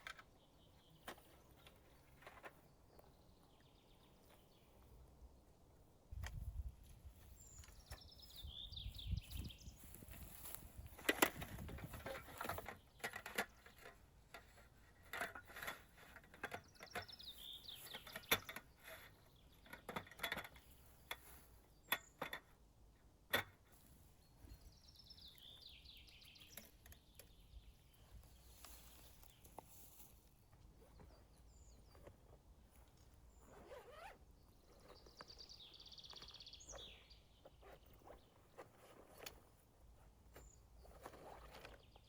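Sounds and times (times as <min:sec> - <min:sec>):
quiet forest ambience: 0:00.0 - 0:42.0
songbird trilling: 0:33.3 - 0:38.4.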